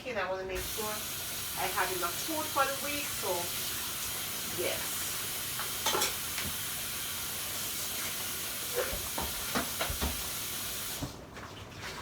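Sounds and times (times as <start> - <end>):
pot boiling hiss: 0.6 - 11.2.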